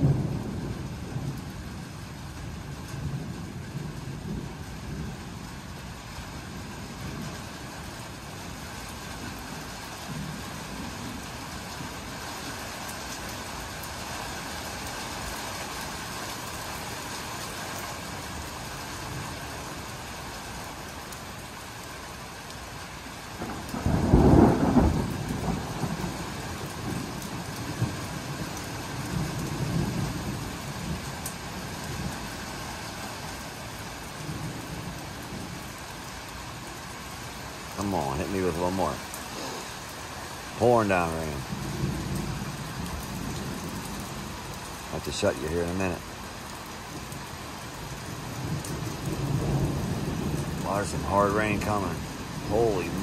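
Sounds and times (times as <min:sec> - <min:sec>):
rumbling thunderclap: 0:00.0 - 0:05.5, 0:23.4 - 0:32.2, 0:41.4 - 0:44.4, 0:47.9 - 0:53.0
steady rain falling: 0:00.0 - 0:53.0.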